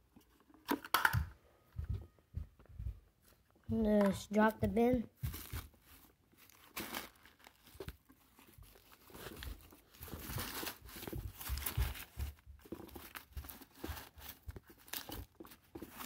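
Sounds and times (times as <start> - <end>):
plastic clicks and light knocks: 0.2 - 1.3
plastic rustling and crinkling: 3.8 - 16.0.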